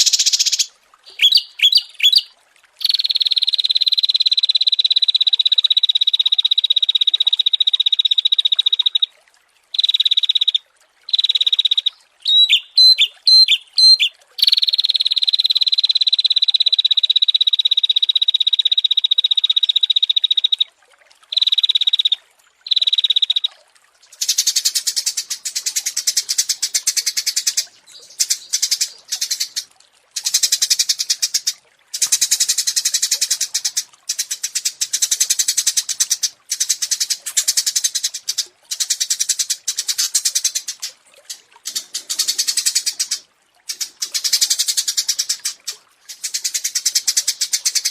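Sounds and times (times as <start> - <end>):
songbird trilling: 0.0 - 4.0, 9.8 - 16.3, 24.1 - 29.6.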